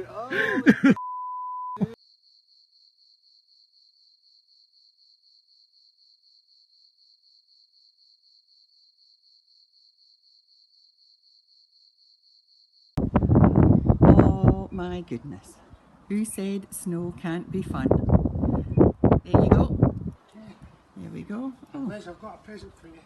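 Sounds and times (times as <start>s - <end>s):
crickets chirping: 1.8s - 14.0s.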